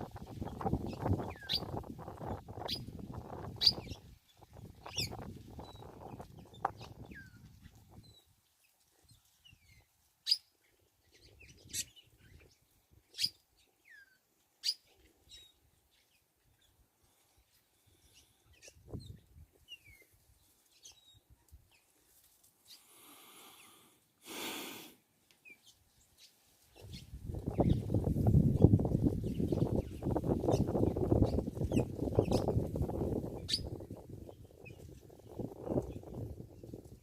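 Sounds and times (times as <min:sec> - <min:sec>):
bird chirps: 0:09.5 - 0:10.5, 0:13.1 - 0:16.8, 0:33.4 - 0:36.2.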